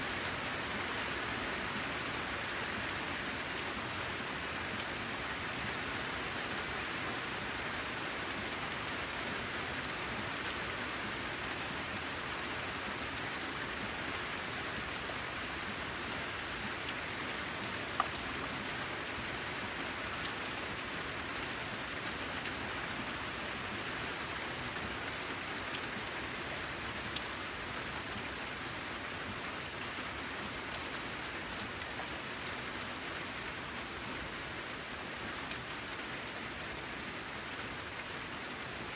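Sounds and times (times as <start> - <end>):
steady rain falling: 0.0 - 38.9
raindrops ticking: 16.9 - 19.0.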